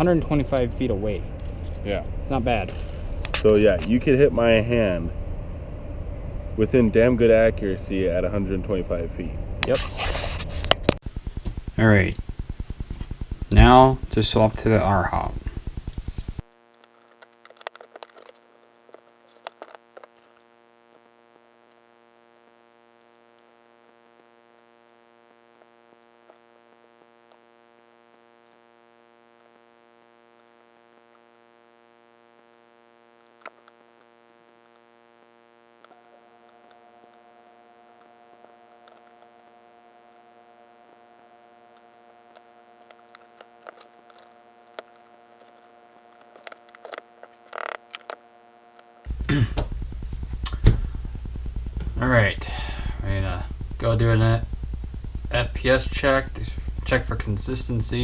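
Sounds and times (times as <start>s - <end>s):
steady electrical hum: 0.0s - 58.0s
clicks of small parts handled: 16.8s - 20.4s, 32.6s - 34.9s, 35.8s - 49.1s.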